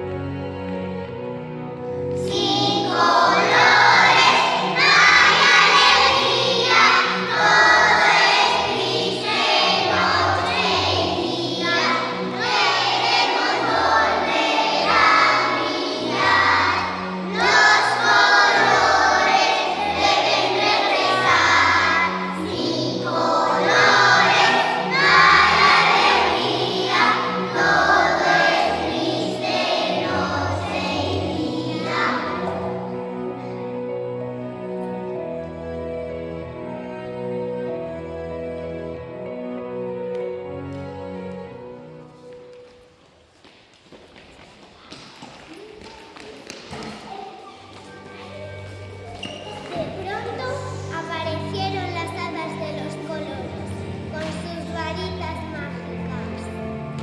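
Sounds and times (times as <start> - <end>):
group of voices singing: 2.3 - 33.0.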